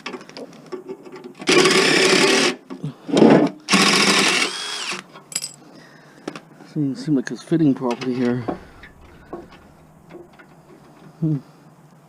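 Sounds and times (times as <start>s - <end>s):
handheld power tool whirring: 1.4s - 2.6s, 3.7s - 5.0s
heavy knock: 8.4s - 10.3s.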